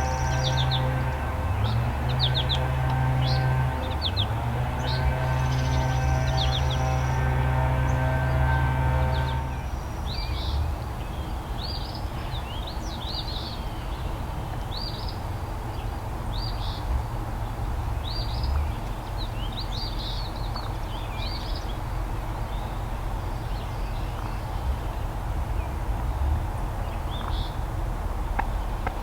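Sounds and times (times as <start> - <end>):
songbird chirping: 0.0 - 14.1.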